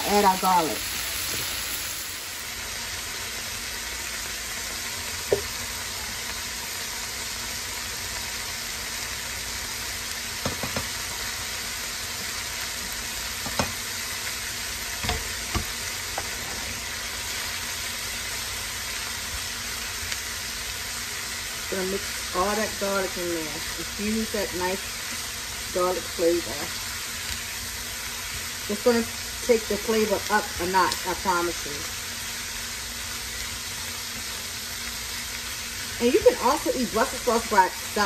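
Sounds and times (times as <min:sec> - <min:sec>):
vegetables sizzling in hot oil: 0:00.0 - 0:38.0
sharp clacks of board on pan: 0:10.4 - 0:10.9, 0:13.4 - 0:13.8.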